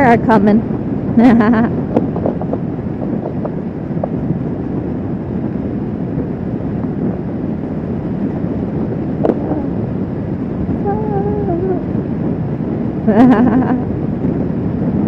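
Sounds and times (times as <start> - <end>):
wind rush on microphone: 0.0 - 15.0
motorcycle engine running: 1.2 - 11.9.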